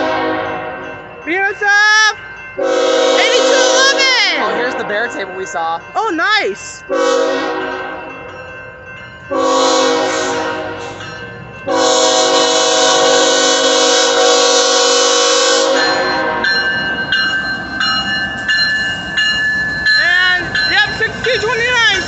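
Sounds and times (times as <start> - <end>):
locomotive air horn blowing: 0.0 - 0.8, 2.6 - 4.6, 6.9 - 8.0, 9.3 - 11.0, 11.7 - 16.5
train passing: 0.0 - 22.0.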